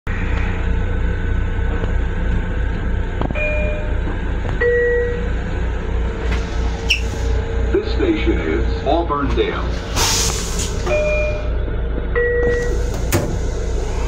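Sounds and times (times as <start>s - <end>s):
train car rumble: 0.0s - 14.0s
station announcement: 3.4s - 6.6s, 7.4s - 10.0s, 10.7s - 14.0s.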